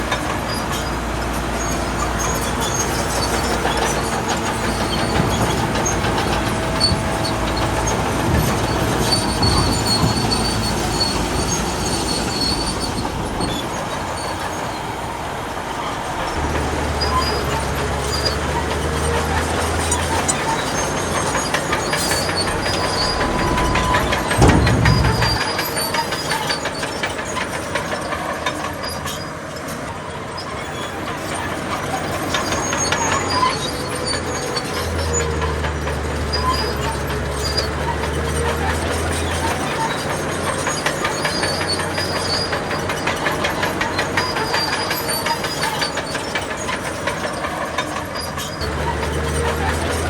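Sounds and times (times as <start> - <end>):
steel tracks clattering: 0.0 - 29.8, 31.2 - 50.0
bulldozer diesel engine: 0.0 - 50.0
high squeals: 15.8 - 26.3
rapid metallic clanks: 16.2 - 27.2.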